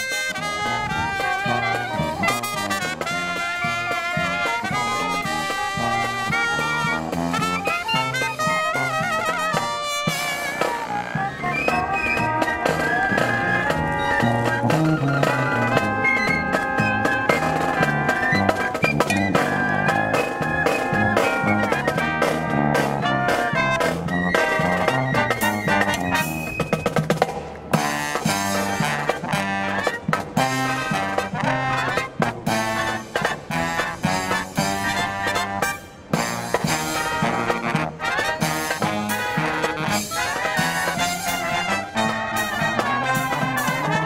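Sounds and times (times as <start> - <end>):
brass band playing jazzy tune: 0.0 - 44.0
steady drum beat: 0.2 - 44.0.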